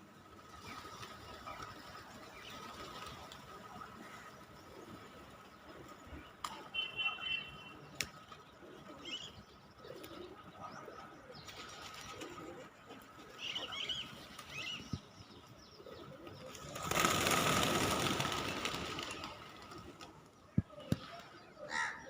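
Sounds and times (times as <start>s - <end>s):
pigeons cooing: 8.4s - 15.0s, 15.7s - 22.0s
wings flapping: 11.4s - 14.9s, 16.2s - 21.4s.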